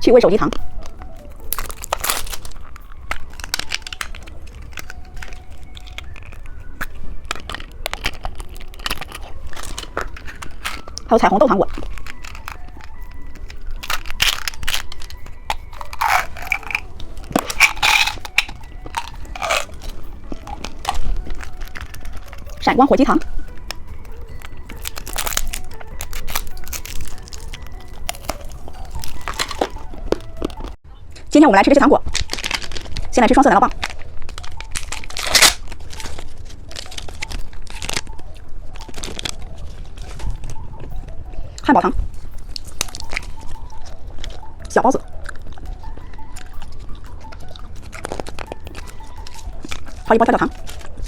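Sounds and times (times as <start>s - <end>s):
candy crunching and crackling: 0.0s - 51.0s
plastic packaging crinkling and tearing: 0.6s - 30.8s, 32.0s - 41.4s, 42.1s - 51.0s.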